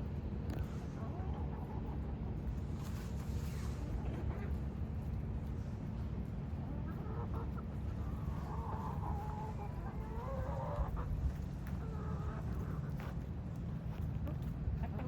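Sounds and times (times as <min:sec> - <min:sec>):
chickens clucking: 0:06.7 - 0:13.2, 0:13.9 - 0:15.0.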